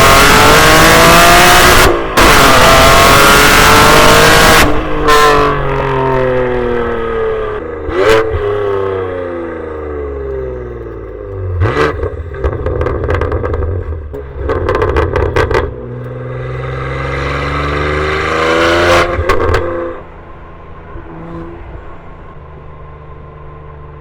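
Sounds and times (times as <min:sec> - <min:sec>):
car engine accelerating: 0:00.0 - 0:24.0
exhaust pops and crackles: 0:10.2 - 0:16.2, 0:19.1 - 0:19.7.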